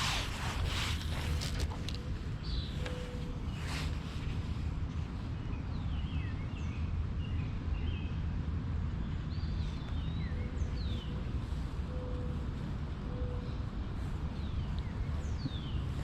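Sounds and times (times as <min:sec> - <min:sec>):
steady low rumble: 0:00.0 - 0:16.0
birds chirping: 0:09.1 - 0:16.0.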